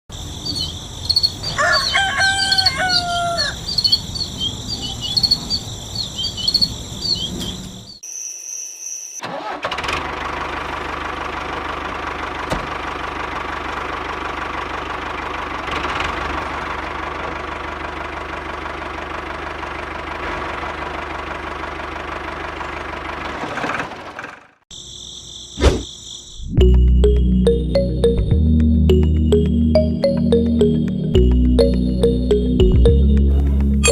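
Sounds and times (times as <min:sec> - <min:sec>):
crickets trilling: 0:00.1 - 0:09.2, 0:24.7 - 0:26.6
rooster crowing: 0:01.5 - 0:03.8.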